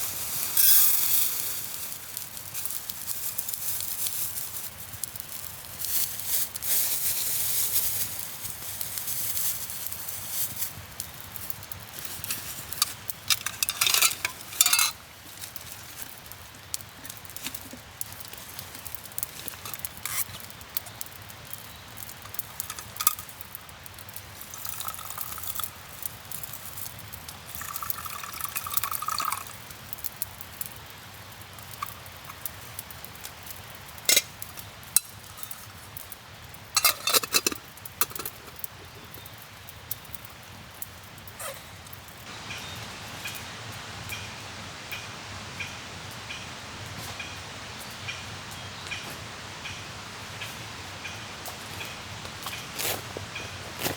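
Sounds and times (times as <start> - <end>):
light sizzling: 0.0 - 53.9
utensil clinking against pot: 12.8 - 15.0, 22.3 - 23.3, 24.5 - 25.7, 27.5 - 29.5, 36.8 - 38.6.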